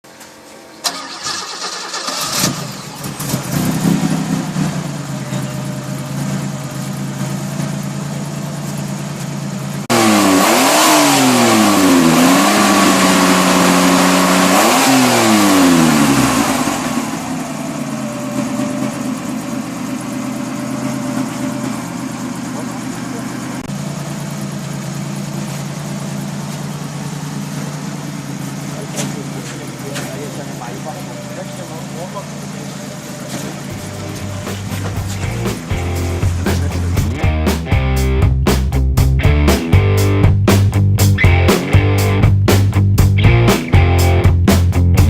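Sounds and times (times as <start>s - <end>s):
car engine idling: 0.0s - 45.0s
car engine starter cranking: 0.7s - 4.2s
car engine revving: 0.8s - 45.0s.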